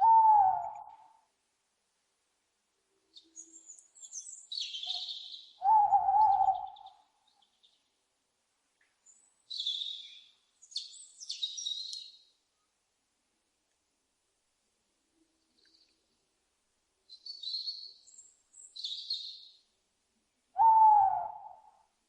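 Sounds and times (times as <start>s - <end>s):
wavering lower owl call: 0.0s - 1.3s, 4.5s - 7.4s, 20.5s - 22.0s
owl screeching calls: 4.8s - 6.9s, 20.6s - 21.8s.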